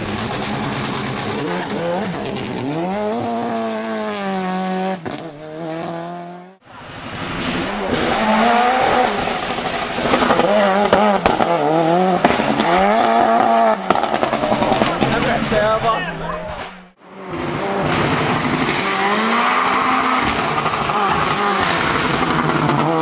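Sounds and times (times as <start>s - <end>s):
rally car engine revving: 0.0s - 23.0s
tyre squeal: 1.5s - 2.7s, 8.0s - 15.0s
high thin whistles: 9.1s - 10.2s, 12.2s - 12.8s.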